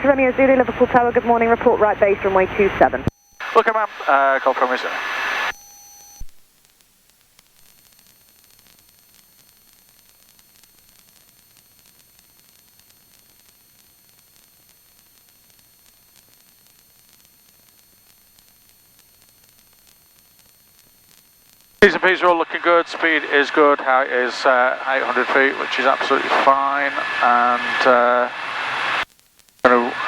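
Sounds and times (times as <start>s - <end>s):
faint radio static hiss: 0.0s - 30.0s
radio transmission click: 21.8s - 29.0s, 29.6s - 30.0s.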